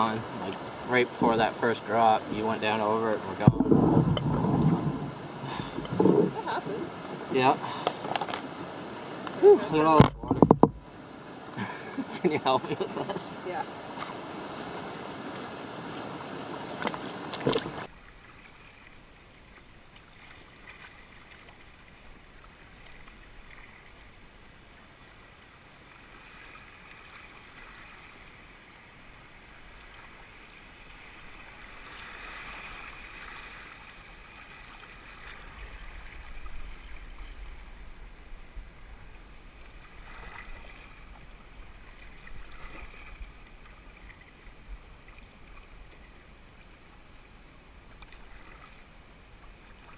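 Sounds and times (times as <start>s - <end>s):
paddle splashes: 0.0s - 49.9s
river water rushing: 0.0s - 49.9s
handling knocks: 3.4s - 6.4s.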